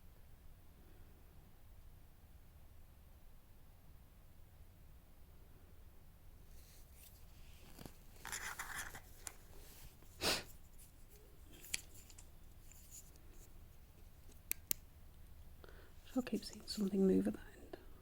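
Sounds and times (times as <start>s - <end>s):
rustling and scraping handling noise: 6.4s - 14.8s
sharp clicks: 14.3s - 14.9s.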